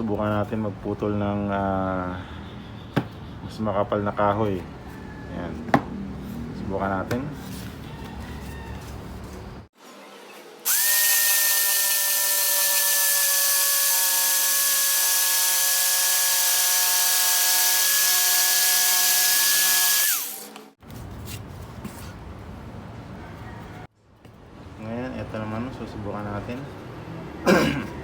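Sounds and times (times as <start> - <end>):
electric jigsaw cutting wood: 10.6 - 20.7.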